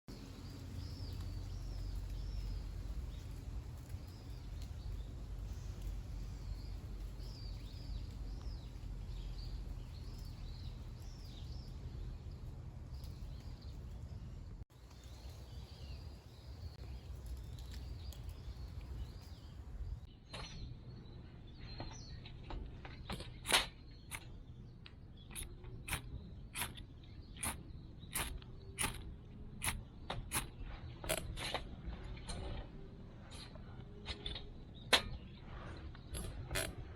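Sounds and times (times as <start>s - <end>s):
low outdoor rumble: 0.1s - 36.9s
small birds chirping: 0.1s - 36.9s
sharp clicks: 23.1s - 32.6s.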